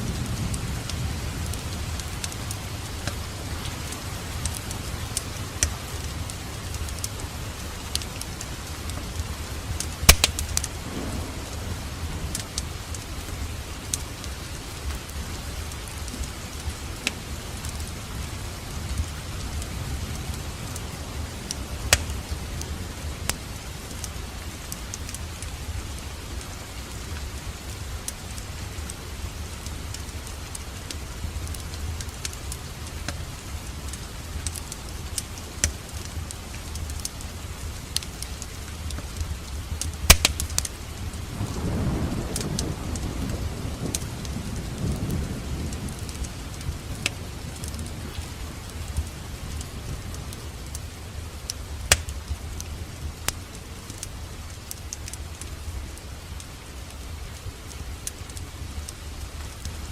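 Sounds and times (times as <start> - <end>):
low rumble of flames: 0.0 - 59.9
fire sharp pops: 1.5 - 7.2, 9.7 - 14.3, 16.0 - 17.8, 21.4 - 22.7, 33.9 - 37.2, 37.9 - 41.7, 51.5 - 52.4.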